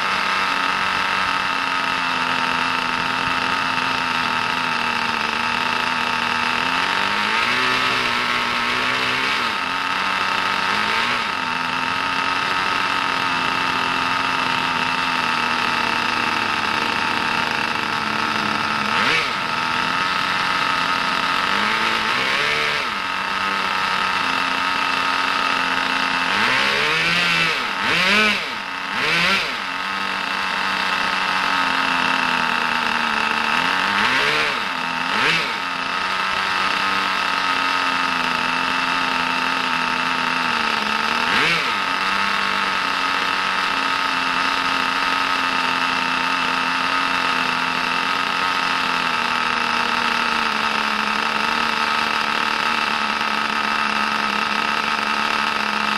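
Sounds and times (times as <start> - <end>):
small engine idling with whine: 0.0 - 55.9.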